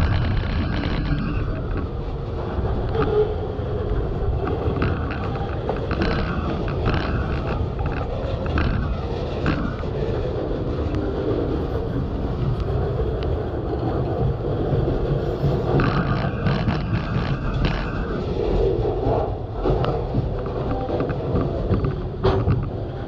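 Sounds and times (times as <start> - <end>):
wheel clicks and squeaks: 0.0 - 10.3, 11.7 - 18.7
freight train wheels rumbling: 0.0 - 23.0.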